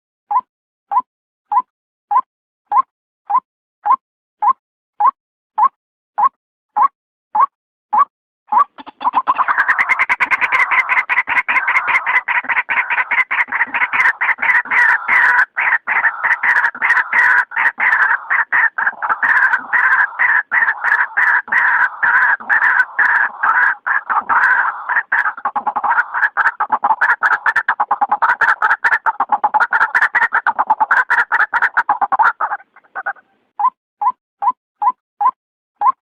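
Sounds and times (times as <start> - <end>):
waterhen calling harsh notes: 8.5 - 33.4.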